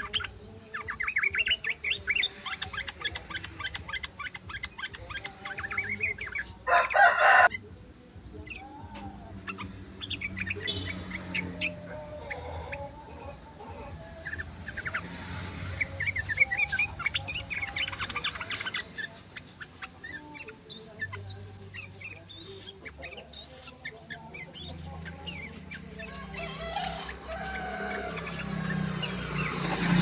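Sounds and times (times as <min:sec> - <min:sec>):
bulbul chattering chirps and whistles: 0:09.4 - 0:11.8, 0:15.8 - 0:30.0.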